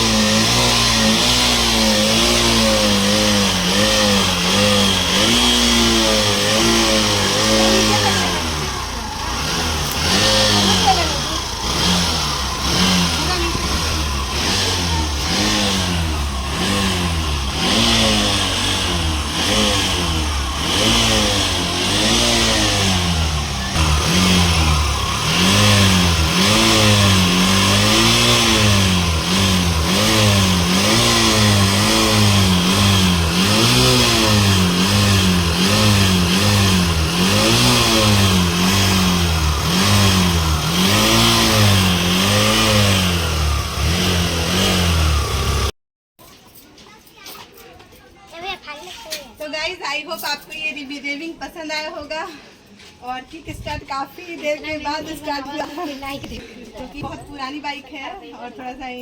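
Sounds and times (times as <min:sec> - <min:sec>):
motorcycle engine revving: 0:00.0 - 0:45.8.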